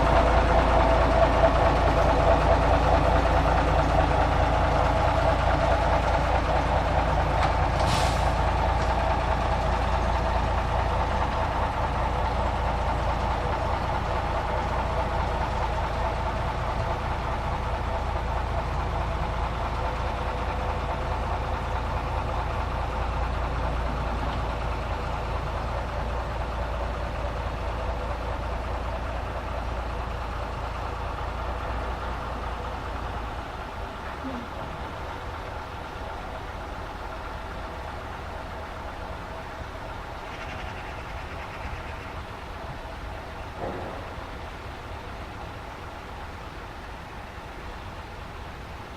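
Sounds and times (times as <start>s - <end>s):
diesel engine running at low revs: 0.0s - 48.9s
brief hiss: 7.8s - 8.4s.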